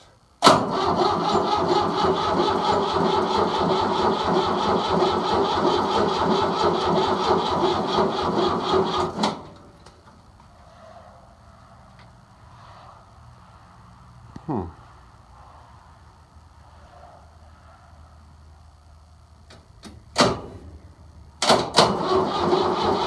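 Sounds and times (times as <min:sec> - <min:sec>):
diesel tractor cranking on starter: 0:00.4 - 0:10.3, 0:19.5 - 0:23.0.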